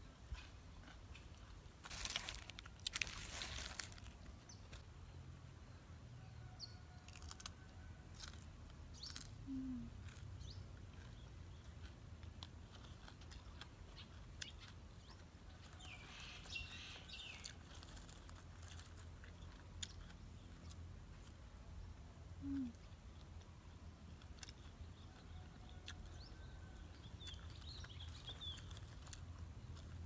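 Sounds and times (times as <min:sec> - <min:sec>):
crunching raw vegetables: 0:00.3 - 0:05.2, 0:06.8 - 0:30.0
faint bird chirps: 0:08.9 - 0:11.7.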